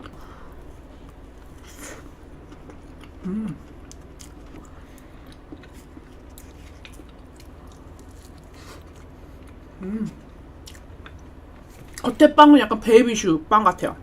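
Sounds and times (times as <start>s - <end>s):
person chewing soft cake: 0.0s - 12.0s
person humming: 3.2s - 3.6s, 9.8s - 10.2s.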